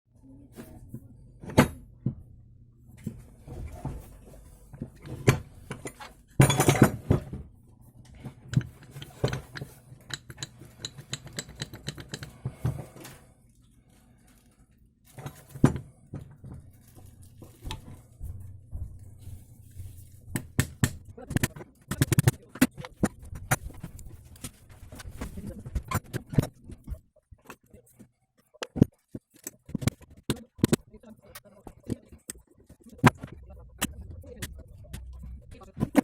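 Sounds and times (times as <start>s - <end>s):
metal tools clinking and clanking: 5.0s - 7.2s, 8.5s - 13.0s.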